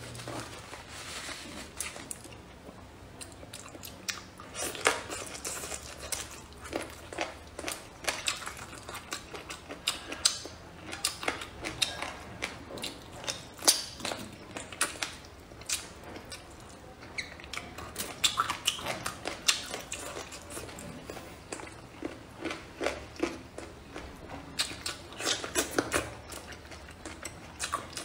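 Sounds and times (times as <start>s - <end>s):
wet chewing and smacking: 1.8s - 28.0s.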